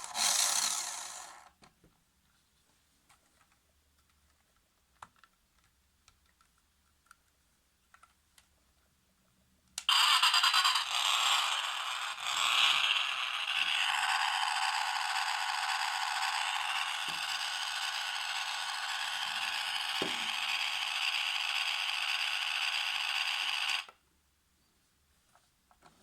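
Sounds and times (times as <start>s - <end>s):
toy car motor whirring: 0.0s - 1.6s, 9.9s - 24.0s.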